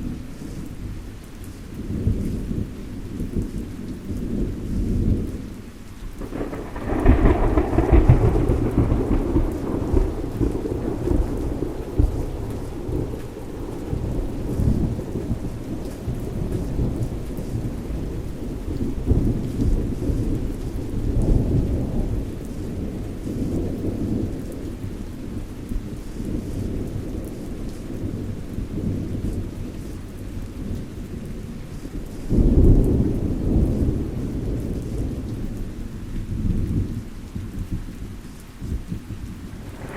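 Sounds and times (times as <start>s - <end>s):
steady rain: 0.0s - 39.9s
rolling thunder: 1.8s - 38.0s, 38.6s - 39.9s.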